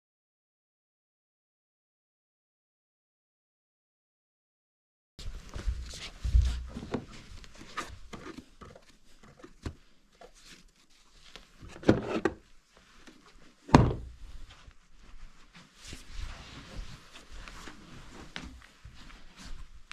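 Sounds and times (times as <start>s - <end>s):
knocks and thuds: 13.7s - 14.1s.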